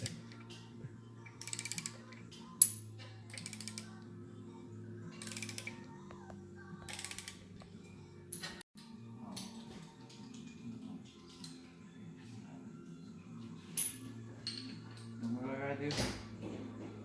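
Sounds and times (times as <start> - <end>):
background music: 0.0 - 17.0
ratchet wrench clicking: 1.4 - 4.0, 5.2 - 5.8, 6.9 - 7.4.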